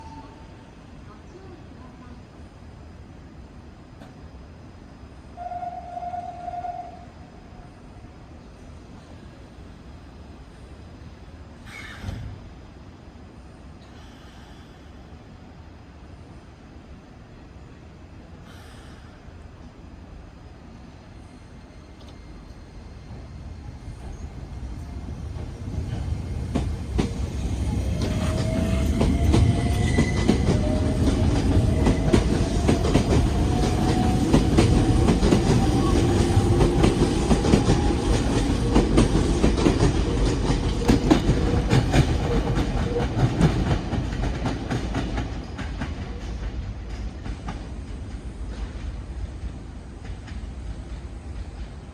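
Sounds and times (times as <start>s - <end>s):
train wheels clacking: 24.0s - 49.1s.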